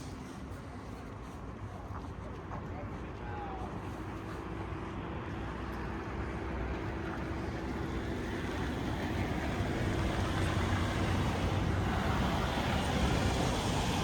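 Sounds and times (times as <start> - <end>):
car road and engine noise: 4.0 - 14.0.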